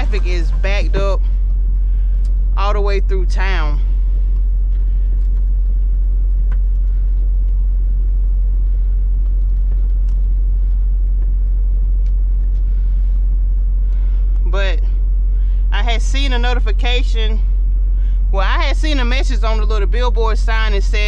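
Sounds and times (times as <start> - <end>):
truck engine and road noise: 0.0 - 3.7.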